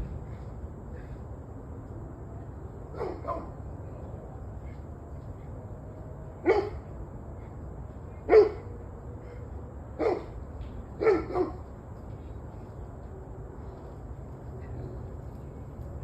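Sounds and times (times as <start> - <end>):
steady low hum: 0.0 - 16.0
dog barking: 2.9 - 3.6, 6.4 - 6.8, 8.3 - 8.7, 10.0 - 10.4, 11.0 - 11.6.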